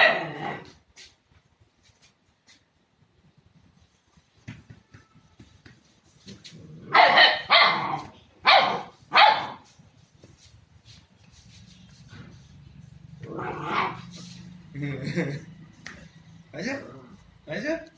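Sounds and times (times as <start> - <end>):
puppy barking: 0.0 - 0.7, 6.9 - 9.7, 13.3 - 14.2
faint scuffling: 0.5 - 6.8, 7.8 - 14.7.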